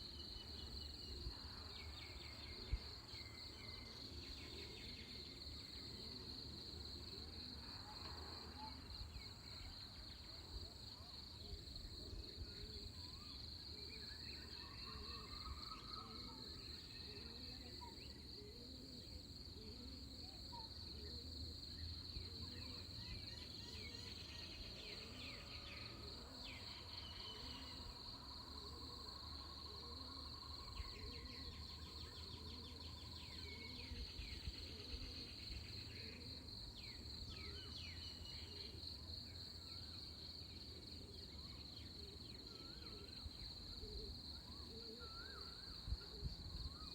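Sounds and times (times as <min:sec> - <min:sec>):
crickets trilling: 0:12.0 - 0:46.9.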